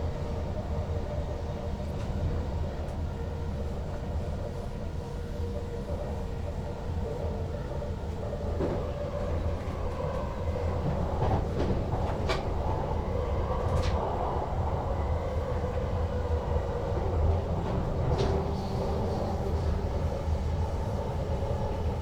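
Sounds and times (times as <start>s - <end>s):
electric train rumble: 0.0s - 22.0s.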